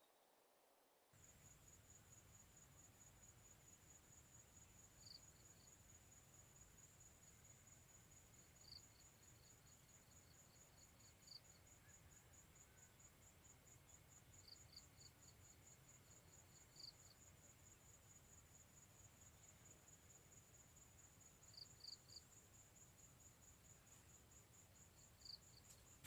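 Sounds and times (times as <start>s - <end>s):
crickets trilling: 24.1s - 26.0s.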